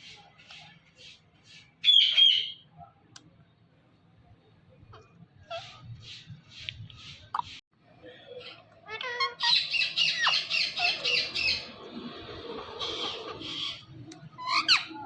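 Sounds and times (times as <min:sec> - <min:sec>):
parrot squawking: 0:08.9 - 0:11.7, 0:12.6 - 0:15.0.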